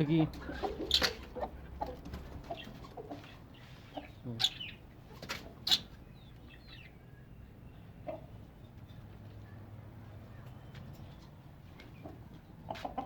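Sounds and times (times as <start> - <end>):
chickens clucking: 0.0 - 13.0
high chirps of small birds: 0.0 - 13.0.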